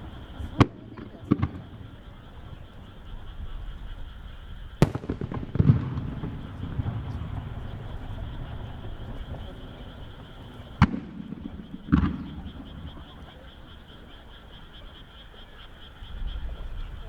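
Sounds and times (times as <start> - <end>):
firework shells bursting: 4.8 - 13.3.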